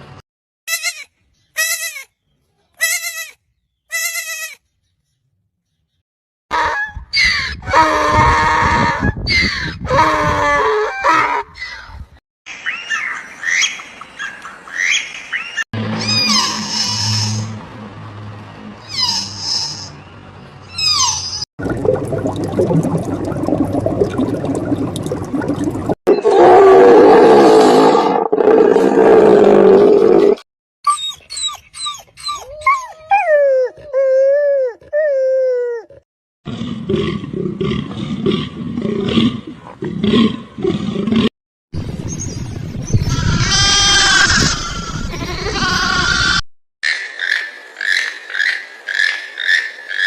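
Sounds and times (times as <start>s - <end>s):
strongly pitched animal call: 15.8s - 17.6s
loud rough animal roar: 26.2s - 30.4s.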